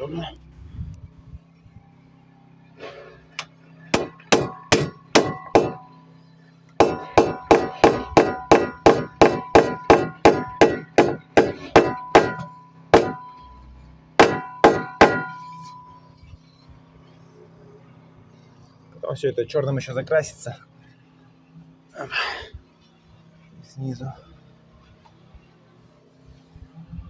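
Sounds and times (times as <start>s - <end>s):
hammer blows with metallic ring: 3.8s - 6.1s, 6.8s - 16.2s.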